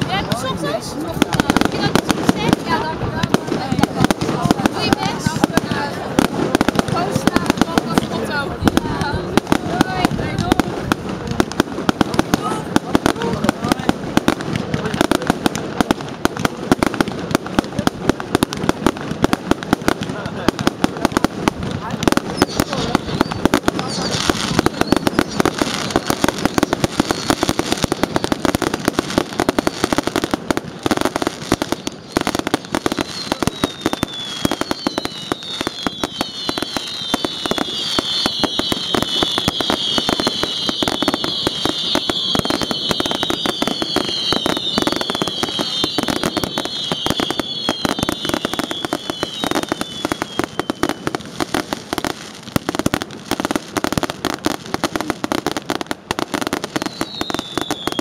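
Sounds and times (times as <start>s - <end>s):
fireworks crackling and banging: 0.0s - 58.0s
falling firework whistles: 22.3s - 30.1s, 31.4s - 51.7s, 56.4s - 58.0s.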